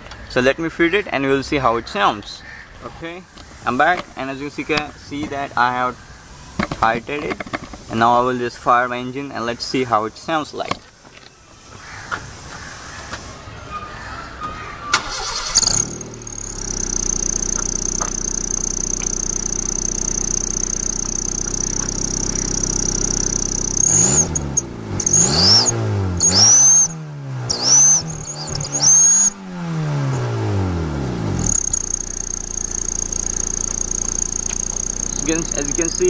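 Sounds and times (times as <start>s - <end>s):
car engine starting and idling: 14.0s - 36.0s
engine revving in quick blips: 14.9s - 36.0s
high-pitched exhaust whistle: 15.0s - 36.0s.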